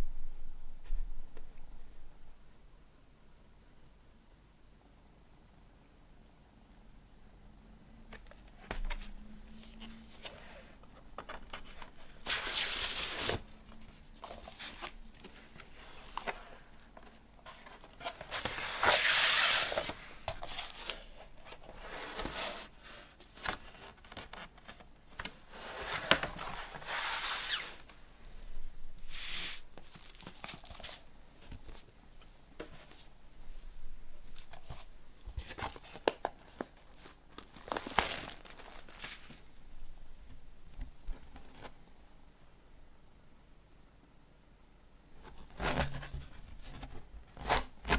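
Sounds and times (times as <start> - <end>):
paper and plastic rustling: 8.1 - 27.9, 29.0 - 31.9, 34.2 - 39.5.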